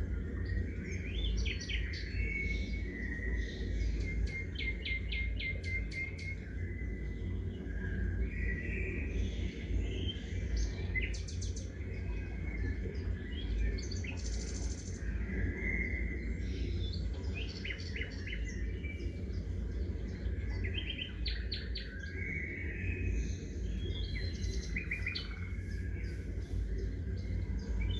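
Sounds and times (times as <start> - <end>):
small birds chirping and trilling: 0.0 - 27.9
steady low rumble: 6.4 - 27.9.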